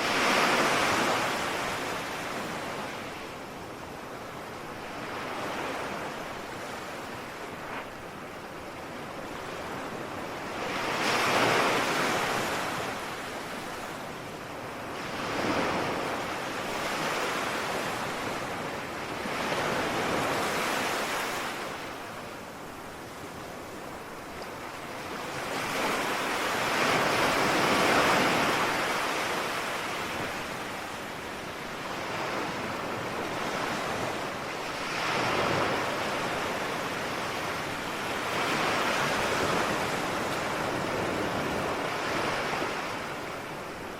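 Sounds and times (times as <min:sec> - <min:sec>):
ocean waves breaking on shore: 0:00.0 - 0:43.9.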